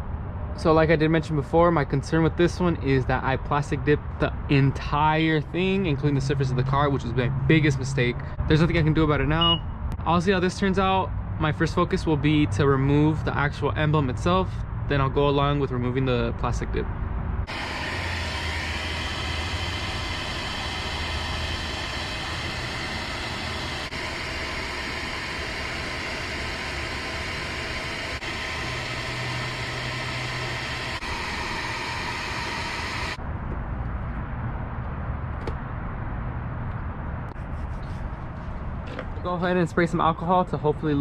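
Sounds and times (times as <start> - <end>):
hair dryer blowing: 17.5 - 33.2.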